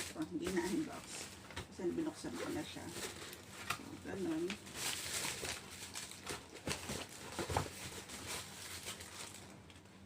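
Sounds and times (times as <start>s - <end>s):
cardboard box rustling: 4.7s - 9.4s.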